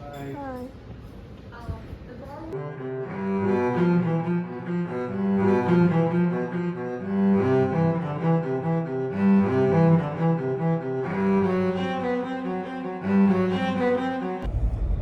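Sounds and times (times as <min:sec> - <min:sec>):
instrumental background music: 0:02.6 - 0:14.5.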